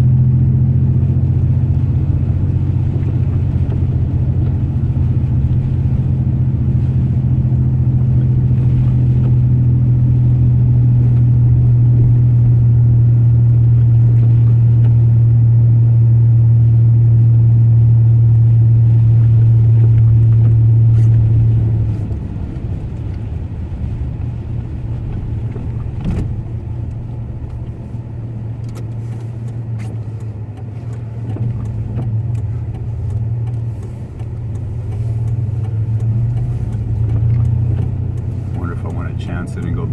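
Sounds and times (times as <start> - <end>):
truck engine and road drone: 0.0 - 39.9
light clicks: 28.6 - 38.6.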